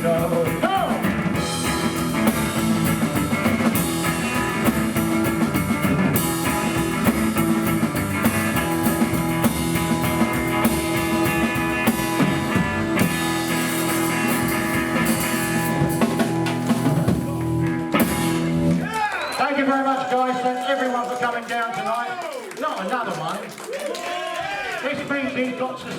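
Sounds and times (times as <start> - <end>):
rockabilly band playing: 0.0 - 19.7.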